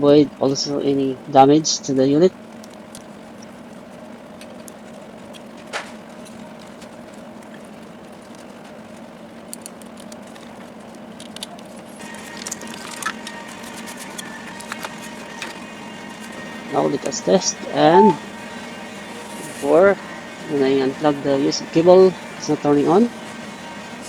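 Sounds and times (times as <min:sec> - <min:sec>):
low electrical hum: 0:00.0 - 0:24.0
faint high tone: 0:16.7 - 0:18.3.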